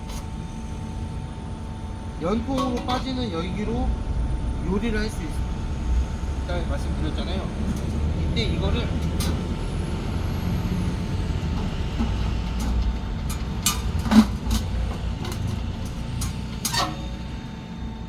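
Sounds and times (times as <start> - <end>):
low steady rumble: 0.0 - 18.0
metal pipe parts clicking: 9.1 - 9.5, 11.6 - 17.2.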